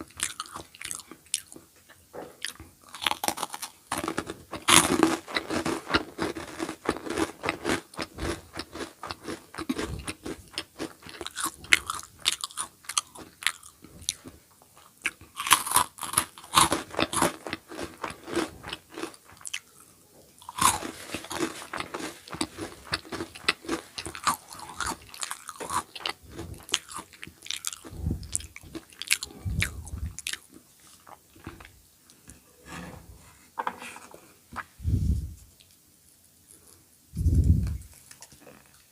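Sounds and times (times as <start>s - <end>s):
crunchy snack being chewed: 0.0s - 1.6s, 2.4s - 31.7s.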